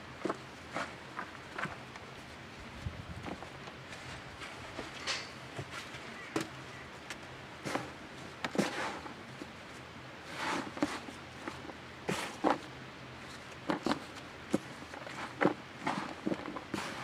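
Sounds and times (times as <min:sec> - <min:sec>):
hands digging in compost: 0:07.6 - 0:17.0.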